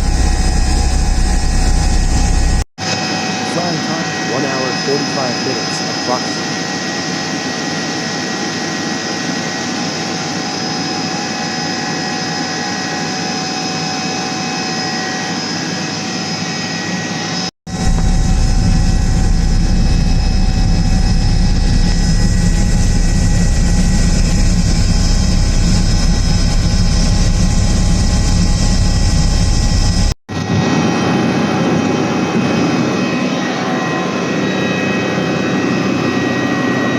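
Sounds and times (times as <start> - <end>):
heavy low rumble: 0.0 - 2.6, 17.7 - 30.1
helicopter cabin whine: 0.0 - 36.9.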